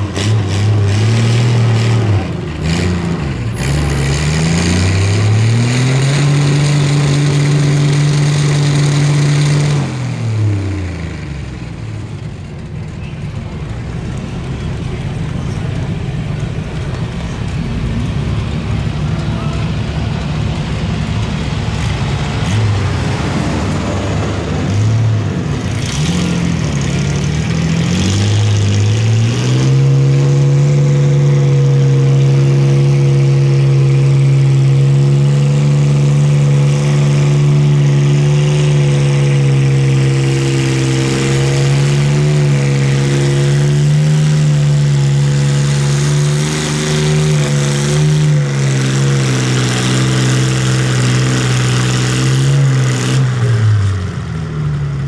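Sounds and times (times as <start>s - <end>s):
engine at high revs under load: 0.0s - 11.2s, 13.3s - 54.6s.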